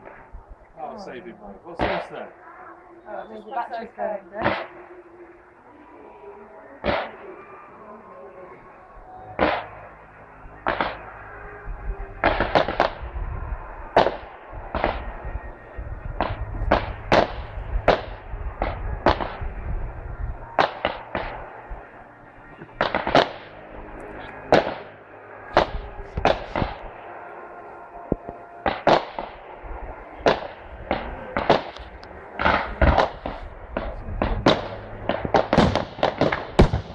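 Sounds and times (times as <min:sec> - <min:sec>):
low rumble: 0:00.0 - 0:36.9
fireworks bangs: 0:01.7 - 0:02.3, 0:09.1 - 0:27.3, 0:28.0 - 0:36.9.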